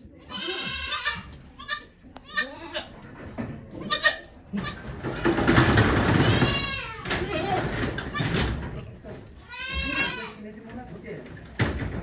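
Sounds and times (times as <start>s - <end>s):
goat bleating: 0.2s - 3.0s, 3.8s - 5.5s, 6.1s - 10.4s.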